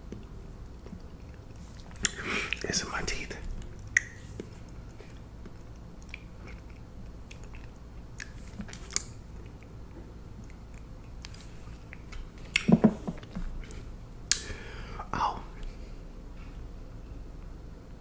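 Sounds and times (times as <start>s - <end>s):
soft wet mouth clicks: 3.6s - 9.7s, 14.3s - 14.5s
person chewing food: 3.6s - 14.4s.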